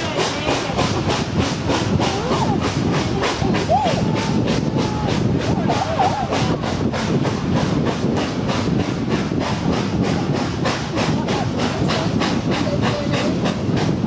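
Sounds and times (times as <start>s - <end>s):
steam train chugging: 0.0s - 14.0s.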